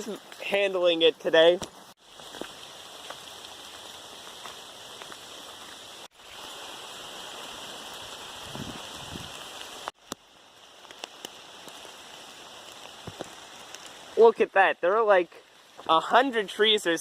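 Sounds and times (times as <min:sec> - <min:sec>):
rain hiss: 0:00.0 - 0:17.0
raindrops tapping: 0:08.5 - 0:14.2.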